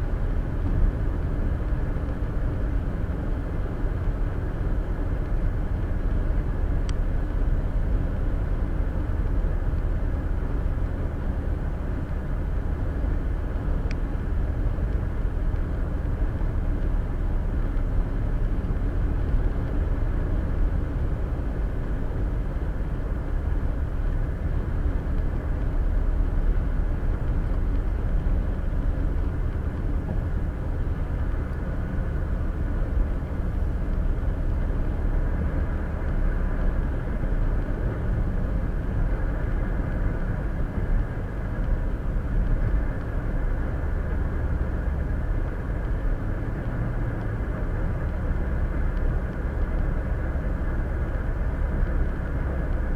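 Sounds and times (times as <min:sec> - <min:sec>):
car road noise from inside: 0:00.0 - 0:52.9
faint ticks: 0:13.8 - 0:14.1, 0:33.2 - 0:36.3.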